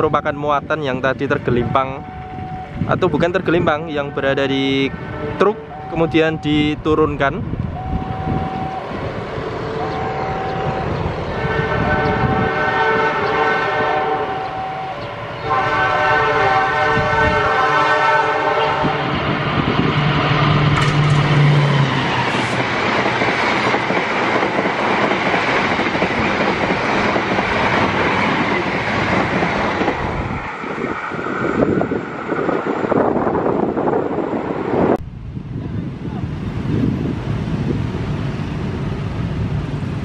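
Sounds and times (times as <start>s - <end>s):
train rushing past: 0.0s - 40.0s
locomotive air horn blasts: 9.8s - 19.2s.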